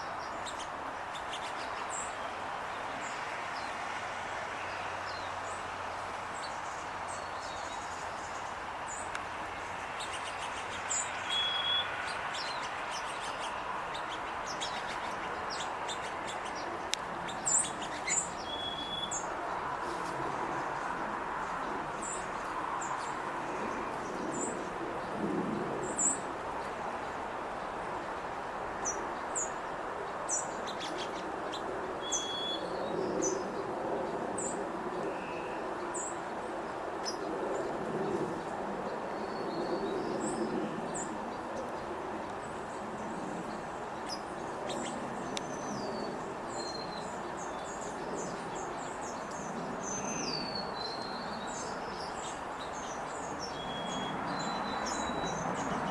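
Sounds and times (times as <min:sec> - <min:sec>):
sparrows chip calls: 0:10.0 - 0:19.2.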